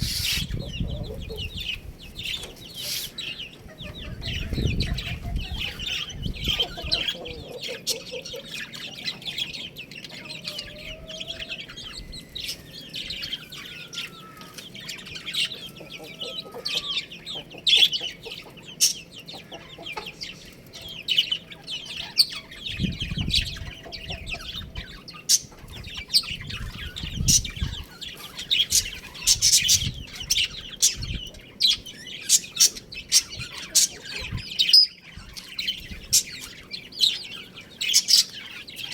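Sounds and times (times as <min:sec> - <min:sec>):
chicks cheeping: 0:00.0 - 0:38.9
hens clucking: 0:00.0 - 0:38.9.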